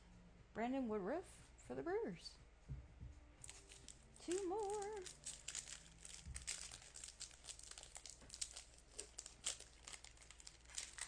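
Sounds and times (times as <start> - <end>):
card wrappers crinkling: 3.4 - 11.0.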